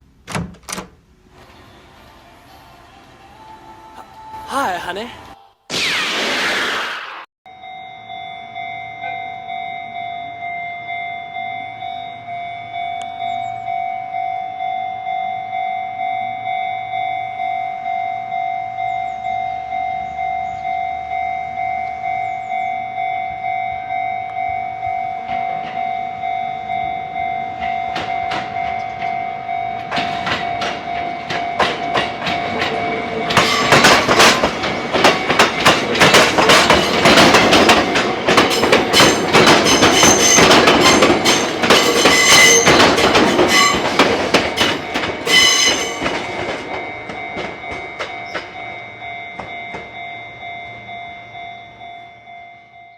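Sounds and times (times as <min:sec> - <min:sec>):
crossing warning bell dinging: 0:07.5 - 0:52.9
train wheels clacking on rails: 0:25.1 - 0:50.7.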